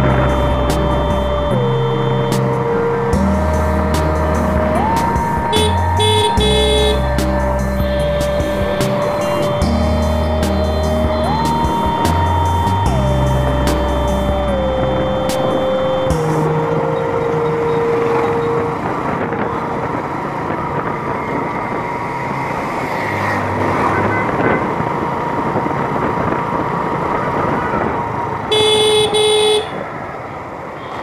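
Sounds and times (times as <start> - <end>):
horn honking: 0.0 - 21.5, 28.4 - 30.0
motorcycle engine: 0.0 - 30.9.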